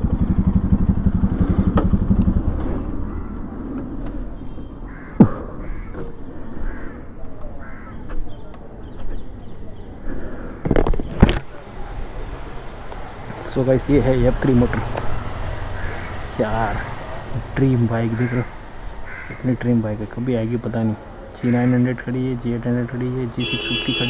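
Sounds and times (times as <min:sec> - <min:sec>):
motorcycle engine idling: 0:00.0 - 0:04.9, 0:11.5 - 0:21.3
street background: 0:00.0 - 0:24.0
crows cawing: 0:03.0 - 0:03.6, 0:04.9 - 0:08.1, 0:15.5 - 0:17.3, 0:18.0 - 0:19.7, 0:21.4 - 0:21.9.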